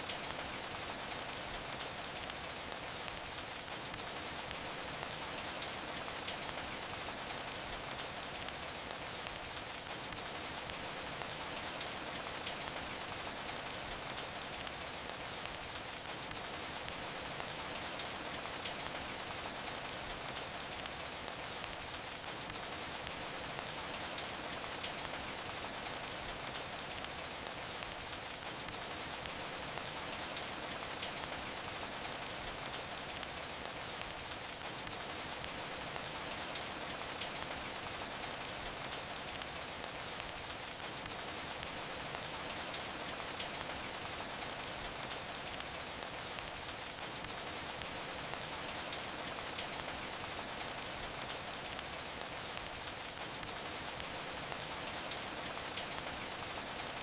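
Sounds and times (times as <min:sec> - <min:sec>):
steady rain falling: 0:00.0 - 0:57.0
wood fire crackling: 0:00.0 - 0:57.0
fire popping: 0:00.1 - 0:05.2, 0:06.0 - 0:57.0.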